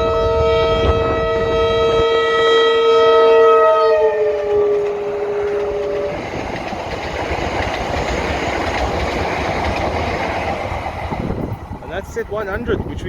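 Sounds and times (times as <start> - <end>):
train horn two-note chord: 0.0 - 6.1
train rumbling past: 0.0 - 13.0.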